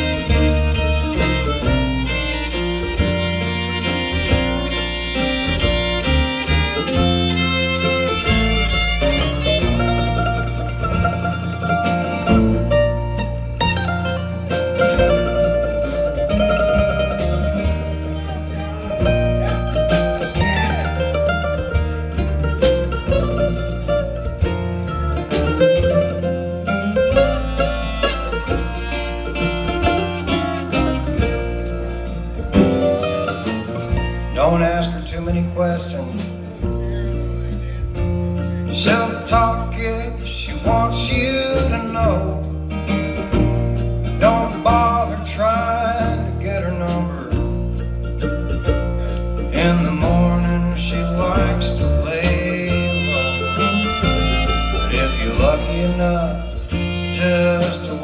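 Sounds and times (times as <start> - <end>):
fiddle playing lead: 0.0 - 34.8, 51.4 - 58.0
bass and rhythm accompaniment: 0.0 - 58.0
guitar: 0.0 - 58.0.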